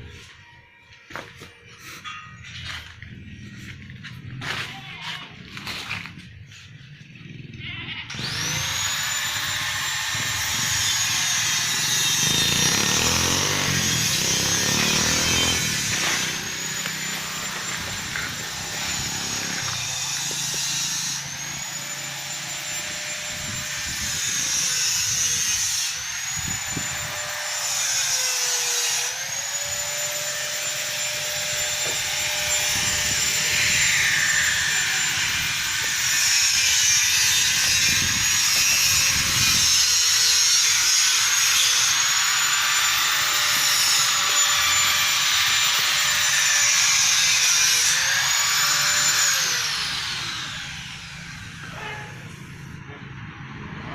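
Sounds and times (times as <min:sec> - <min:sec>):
power tool whining: 0:05.4 - 0:53.2.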